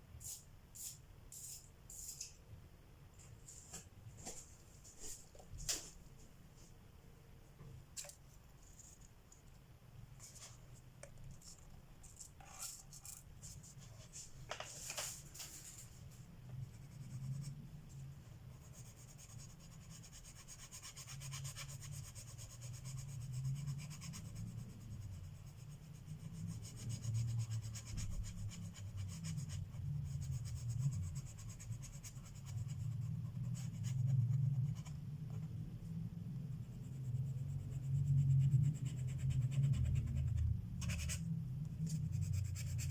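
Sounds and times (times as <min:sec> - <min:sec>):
pencil shading on paper: 0:18.5 - 0:35.5.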